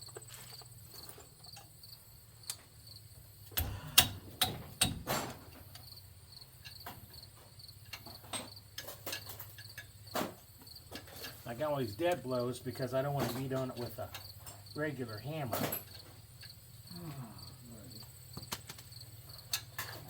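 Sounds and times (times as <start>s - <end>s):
crickets chirping: 0.0s - 20.0s
hammers knocking: 3.6s - 5.6s.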